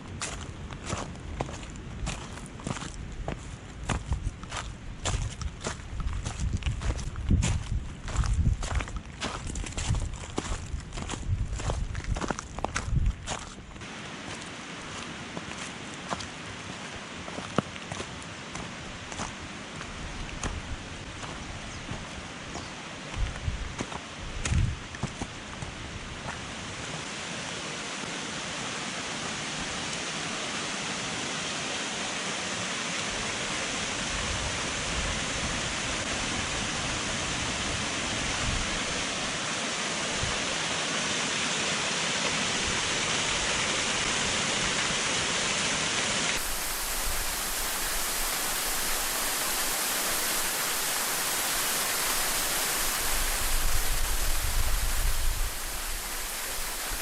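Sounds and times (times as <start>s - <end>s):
wind buffeting microphone: 0.1s - 13.5s, 23.1s - 24.8s, 46.4s - 57.0s
waterfall rushing: 13.8s - 19.3s, 26.7s - 57.0s.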